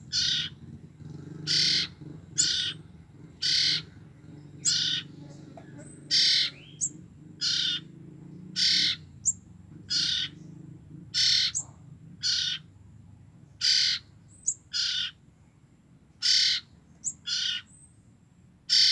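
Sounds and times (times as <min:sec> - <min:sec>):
fledgling birds hissy calls: 0:00.1 - 0:02.8, 0:03.4 - 0:04.0, 0:04.6 - 0:05.3, 0:05.9 - 0:07.9, 0:08.6 - 0:10.4, 0:16.2 - 0:17.7.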